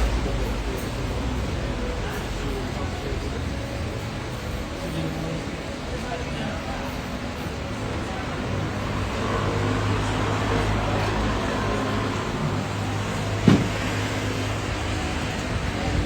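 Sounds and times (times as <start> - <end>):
low engine drone: 0.0 - 5.8
sharp knock: 13.5 - 13.8.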